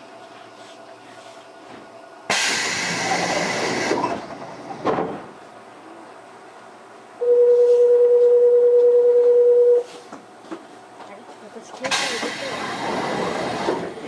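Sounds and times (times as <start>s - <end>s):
air hiss: 2.3s - 4.0s
steady buzzer tone: 7.2s - 9.9s.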